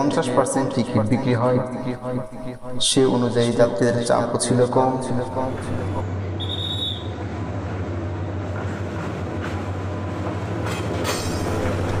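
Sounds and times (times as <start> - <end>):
diesel locomotive engine drone: 0.0 - 12.0
train wheel and rail noise: 4.5 - 12.0.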